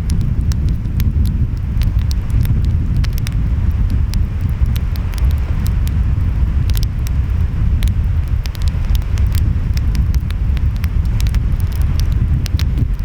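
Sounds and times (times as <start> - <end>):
wind: 0.0 - 13.0
wood fire crackling: 0.0 - 13.0.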